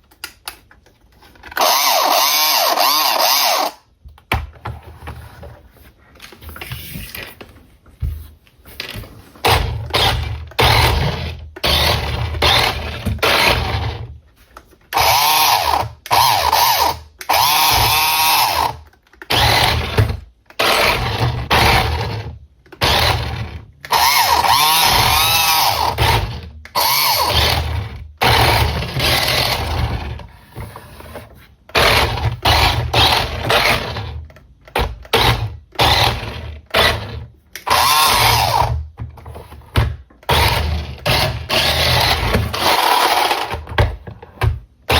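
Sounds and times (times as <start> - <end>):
toy car electric motor whirring: 1.5 - 3.9, 9.4 - 14.1, 14.9 - 38.9, 40.2 - 43.7.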